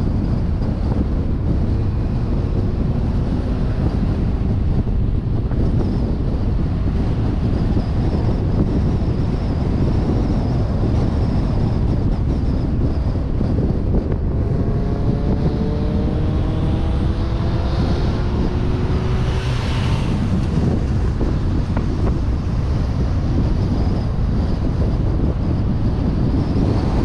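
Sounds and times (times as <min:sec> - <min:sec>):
road noise: 0:00.0 - 0:27.0
wind rushing: 0:00.0 - 0:27.0
car engine rising in pitch: 0:13.8 - 0:23.8.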